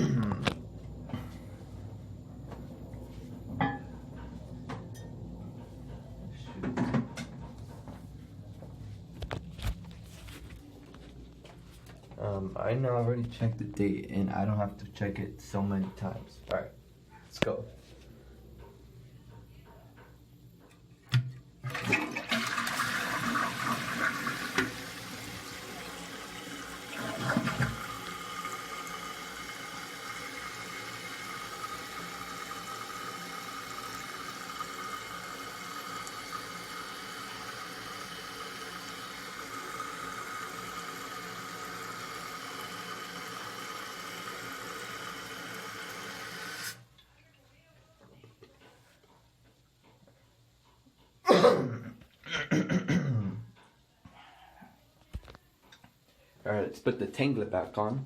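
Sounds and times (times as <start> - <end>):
toilet flush rushing: 21.6 - 46.8
toilet gurgle: 21.6 - 46.8.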